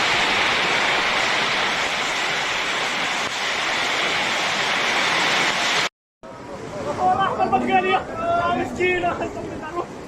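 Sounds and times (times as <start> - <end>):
heavy rain pouring: 0.0 - 5.9.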